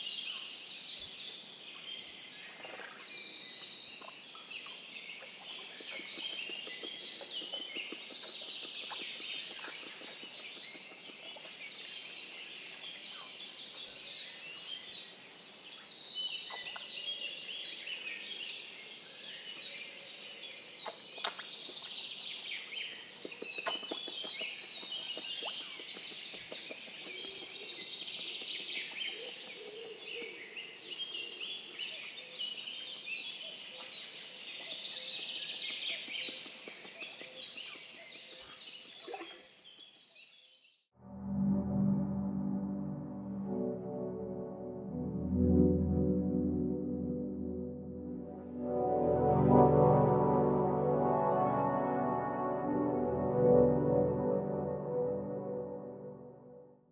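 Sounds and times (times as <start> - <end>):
songbirds chirping and trilling: 0.0 - 40.8.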